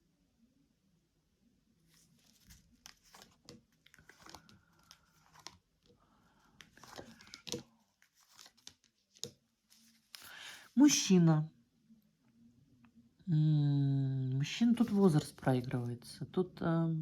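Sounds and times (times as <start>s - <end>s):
cards rustling and clicking: 1.9s - 10.4s.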